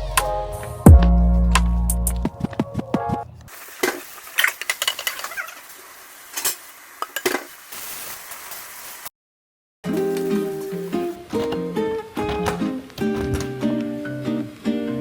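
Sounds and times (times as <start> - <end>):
dishes and utensils clinking: 3.8 - 5.6, 10.8 - 13.6.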